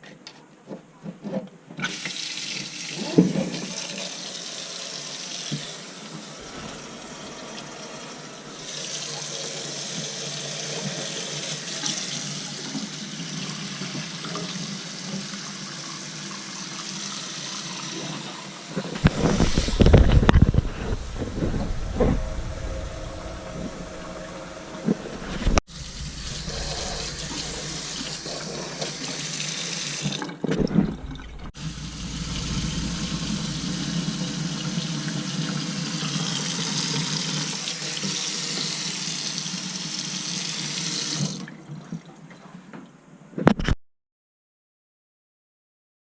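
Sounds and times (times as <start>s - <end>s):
water running from a tap: 1.8s - 41.5s
uneven rushing and knocking: 19.0s - 29.0s.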